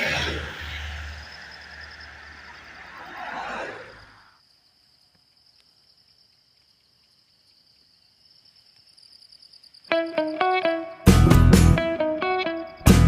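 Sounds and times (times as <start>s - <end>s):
rushing noise: 0.0s - 4.3s
high insect trill: 0.0s - 11.1s, 11.8s - 13.0s.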